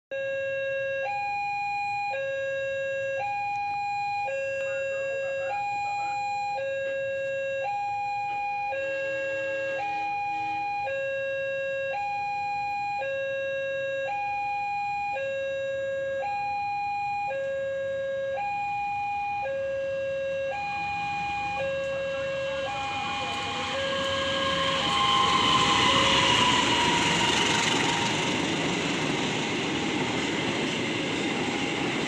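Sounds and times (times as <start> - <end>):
level crossing two-tone alarm: 0.1 - 32.0
rising rumble: 20.5 - 32.0.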